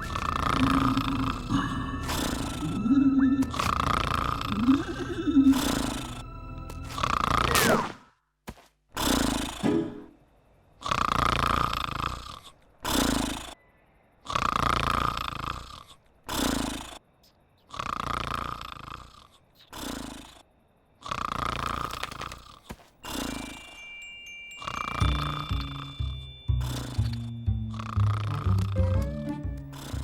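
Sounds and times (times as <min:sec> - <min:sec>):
cartoon snoring: 0:00.0 - 0:06.3, 0:06.9 - 0:08.1, 0:09.0 - 0:10.1, 0:10.8 - 0:13.6, 0:14.2 - 0:23.8, 0:24.6 - 0:30.0
music: 0:00.0 - 0:07.0, 0:24.4 - 0:30.0.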